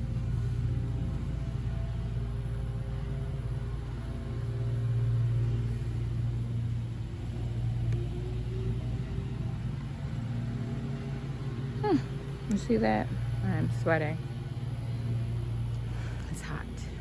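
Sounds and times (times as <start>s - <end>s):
electric fan blowing on microphone: 0.0s - 17.0s.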